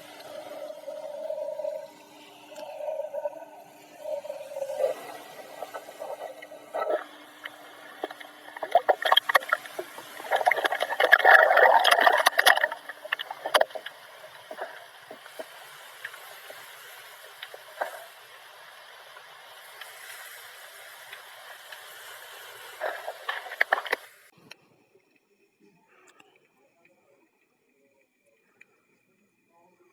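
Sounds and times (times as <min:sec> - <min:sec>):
bubbling water rush: 0:00.0 - 0:24.3
faint hiss: 0:00.0 - 0:29.9
underwater crackling clicks: 0:05.7 - 0:16.2, 0:22.8 - 0:24.1.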